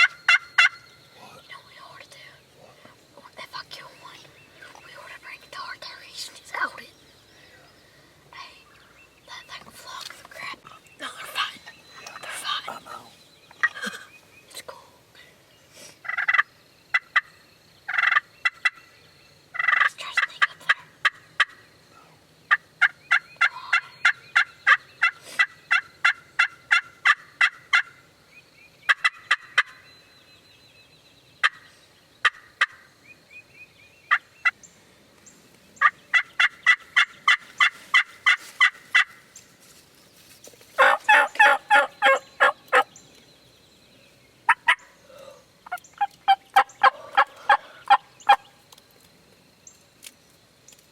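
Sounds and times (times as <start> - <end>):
wild turkeys yelping: 0.0 - 0.9, 16.0 - 17.3, 17.9 - 18.8, 19.6 - 21.7, 22.5 - 28.0, 28.9 - 29.8, 35.8 - 39.2, 40.8 - 43.0, 44.5 - 48.5.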